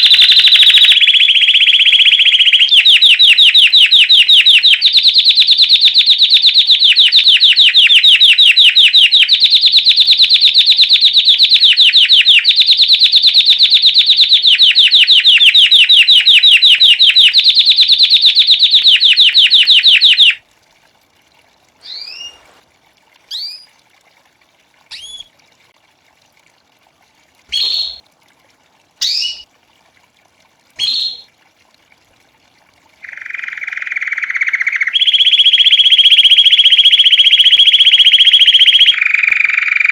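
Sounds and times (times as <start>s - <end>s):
canary ringing trill: 0.0s - 20.4s, 21.8s - 22.4s, 23.3s - 23.7s, 24.9s - 25.3s, 27.5s - 28.0s, 29.0s - 29.4s, 30.8s - 31.3s, 33.0s - 39.9s
canary upward-sliding chirps: 0.0s - 20.4s, 21.8s - 22.6s, 23.3s - 23.7s, 24.9s - 25.3s, 27.5s - 28.0s, 29.0s - 29.4s, 30.8s - 31.3s, 33.0s - 39.9s.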